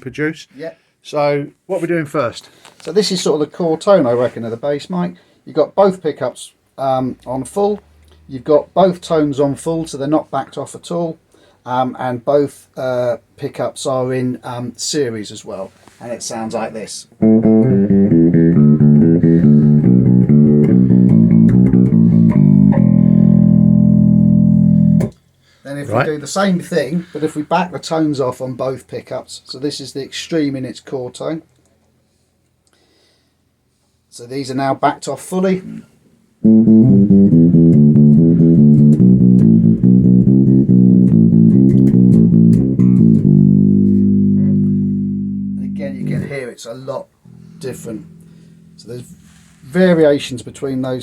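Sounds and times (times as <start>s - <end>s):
electric bass plucked notes: 17.2s - 25.2s, 36.4s - 46.3s, 47.4s - 50.9s.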